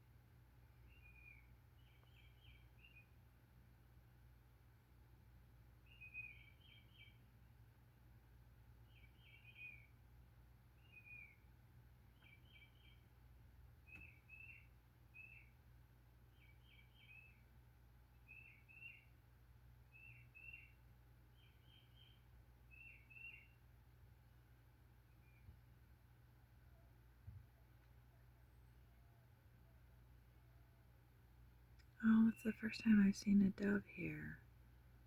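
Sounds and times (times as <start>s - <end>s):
songbird calling: 5.9s - 7.2s, 8.9s - 9.9s, 13.9s - 15.5s, 18.3s - 19.1s, 20.0s - 20.8s, 21.4s - 23.6s.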